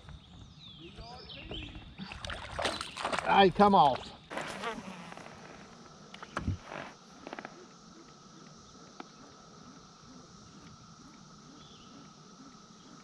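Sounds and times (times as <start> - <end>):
high insect drone: 0.0 - 13.0
faint bird chirps: 6.2 - 13.0.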